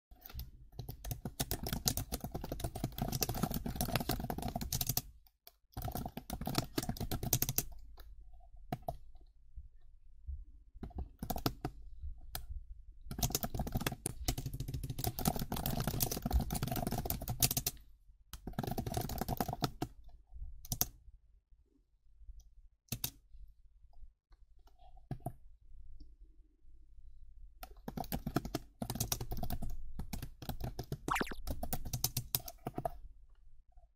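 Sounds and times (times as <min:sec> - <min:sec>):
fast typing on keyboard: 0:00.2 - 0:07.8, 0:08.7 - 0:09.0, 0:10.8 - 0:11.8, 0:13.1 - 0:17.8, 0:18.4 - 0:20.0, 0:20.7 - 0:21.0, 0:27.6 - 0:33.0.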